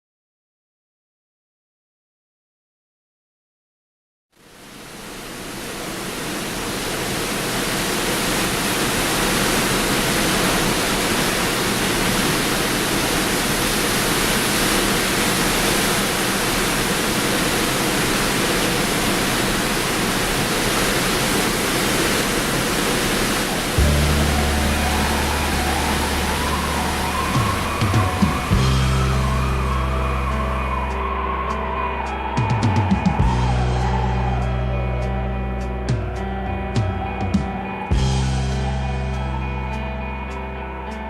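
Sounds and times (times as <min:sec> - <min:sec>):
lake surf: 0:04.4 - 0:40.9
storm wind: 0:04.6 - 0:31.4
low hum: 0:22.9 - 0:40.8.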